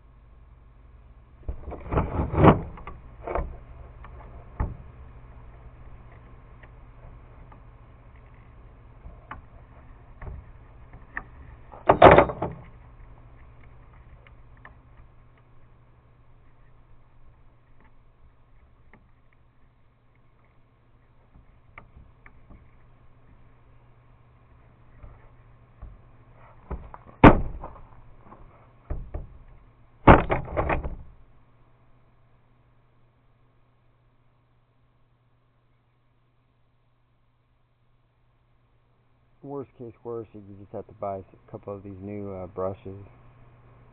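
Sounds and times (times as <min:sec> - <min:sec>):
low steady hum: 0:00.0 - 0:43.9
clattering scrape: 0:01.5 - 0:02.8.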